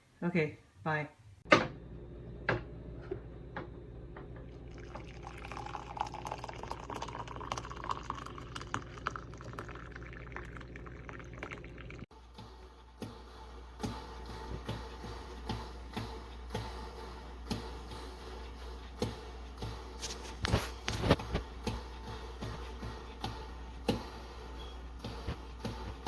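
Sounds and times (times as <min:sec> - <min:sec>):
percolator gurgling and bubbling: 0:04.6 - 0:12.1.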